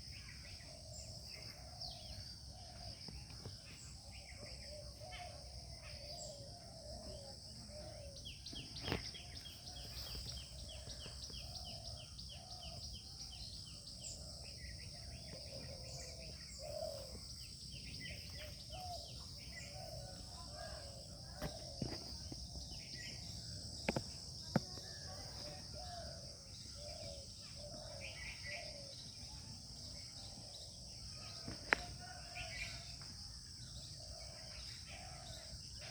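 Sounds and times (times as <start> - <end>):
birds calling: 0.0 - 29.1.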